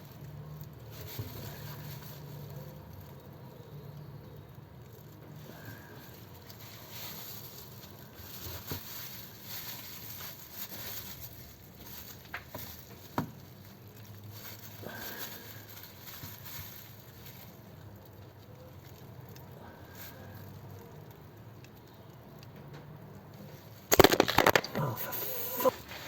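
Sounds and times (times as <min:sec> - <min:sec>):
plastic rustling: 0:00.0 - 0:22.5, 0:23.4 - 0:26.0.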